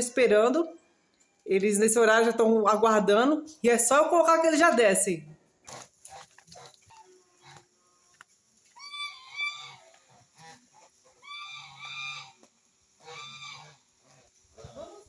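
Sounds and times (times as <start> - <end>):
birds honking: 8.8 - 14.7.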